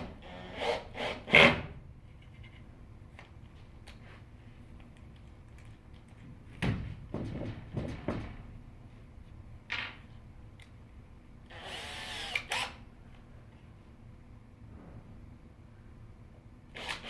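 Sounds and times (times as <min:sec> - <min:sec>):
power drill running: 0:11.5 - 0:12.8, 0:16.8 - 0:17.0.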